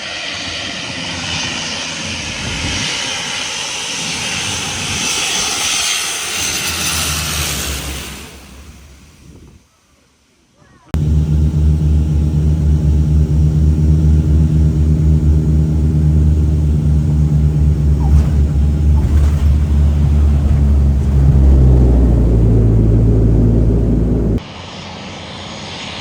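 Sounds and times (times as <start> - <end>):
rough noise: 11.0 - 24.4
turboprop engines droning: 11.0 - 26.0.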